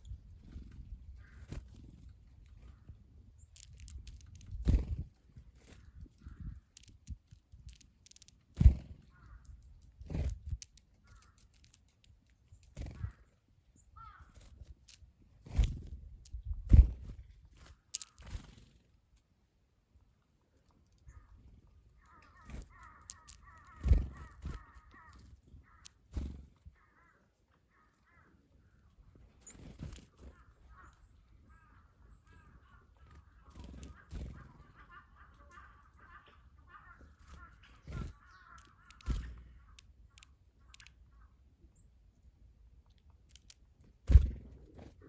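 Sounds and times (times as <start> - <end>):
bird pecking clicks: 3.4 - 5.0, 5.8 - 13.2, 17.9 - 18.5, 22.0 - 26.1, 37.3 - 41.1, 42.8 - 43.7
birds calling: 5.6 - 15.0, 20.9 - 42.3.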